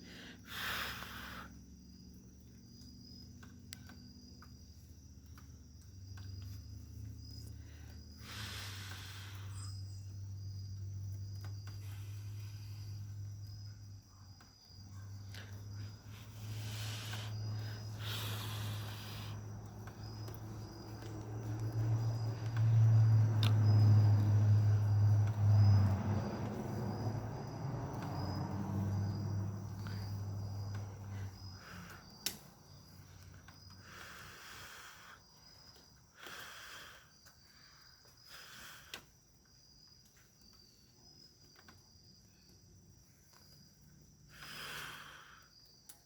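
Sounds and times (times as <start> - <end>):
crickets chirping: 0.0 - 46.0
sharp clicks: 31.9 - 32.5.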